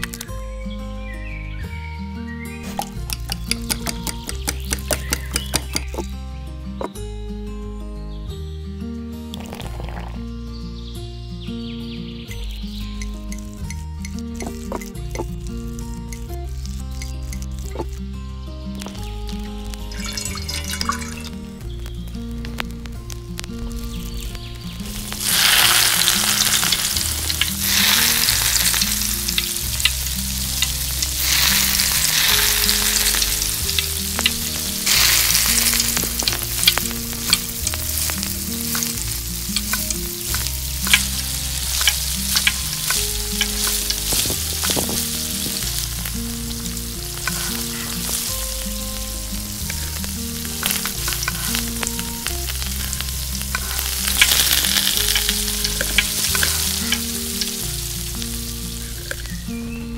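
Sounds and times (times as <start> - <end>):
oil crackles and pops: 0.0 - 0.4, 2.6 - 6.2, 9.3 - 10.3, 12.9 - 59.6
stirring: 2.7 - 6.1
food sizzling in hot oil: 2.7 - 6.2, 13.0 - 18.0, 18.7 - 59.6.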